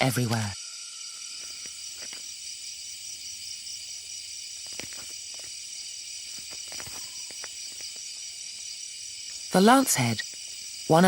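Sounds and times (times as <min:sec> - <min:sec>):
insects trilling: 0:00.0 - 0:11.0
faint ticks or rustles: 0:01.1 - 0:03.0, 0:04.2 - 0:09.6.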